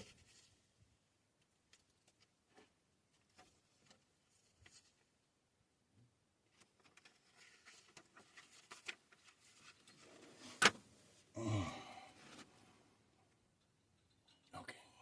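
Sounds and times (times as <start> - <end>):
short low vocal sound: 11.3 - 12.2.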